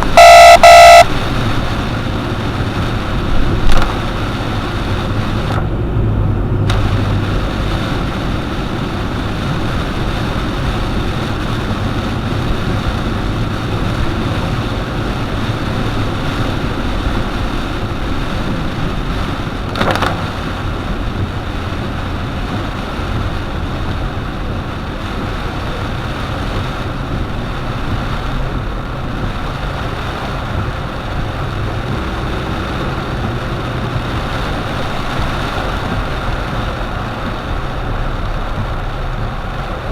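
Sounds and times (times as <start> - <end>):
short sharp noise: 0.0 - 1.0
car driving on wet road: 0.0 - 39.9
rain: 0.0 - 39.9.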